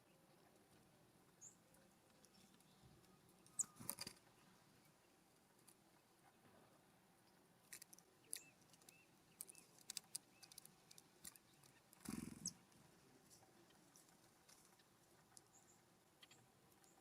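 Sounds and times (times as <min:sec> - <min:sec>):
soft high bird chirps: 0:01.3 - 0:05.2, 0:07.2 - 0:12.7, 0:13.6 - 0:17.0
birds pecking clicks and taps: 0:01.8 - 0:04.4, 0:07.6 - 0:12.7, 0:13.3 - 0:17.0.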